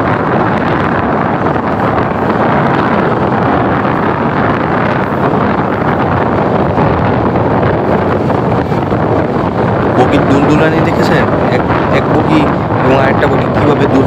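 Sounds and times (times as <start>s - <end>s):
train running noise: 0.0s - 14.0s
wind buffeting microphone: 0.0s - 14.0s.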